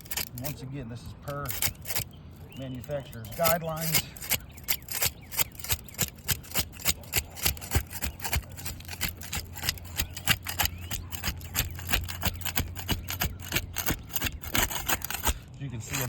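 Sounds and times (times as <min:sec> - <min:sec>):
putty knife scraping shingles: 0:00.0 - 0:16.0.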